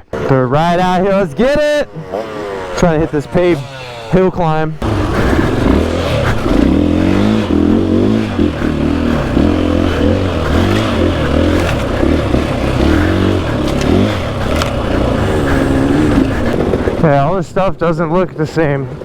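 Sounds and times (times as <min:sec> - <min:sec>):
dirt bike engine revving: 0:00.0 - 0:17.3
sharp ticks: 0:04.8 - 0:17.0.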